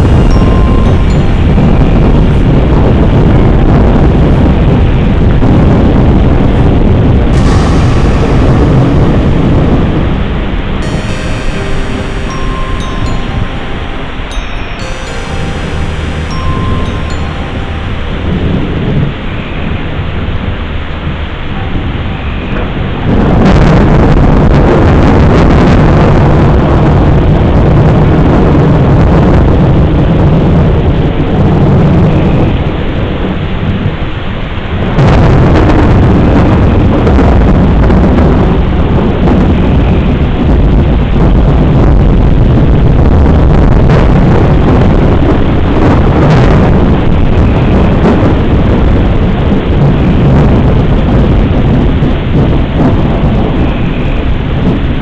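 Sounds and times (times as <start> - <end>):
loud rolling thunder: 0.0 - 12.0
rain: 0.0 - 18.4.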